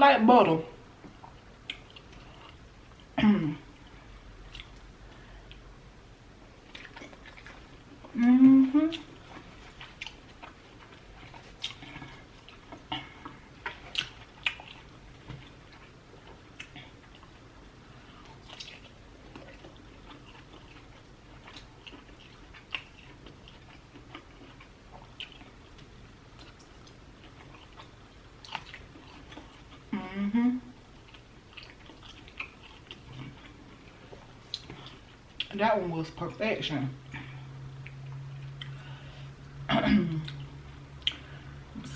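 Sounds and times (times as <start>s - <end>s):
wet chewing mouth clicks: 3.8s - 5.6s, 8.8s - 17.3s, 31.0s - 35.6s.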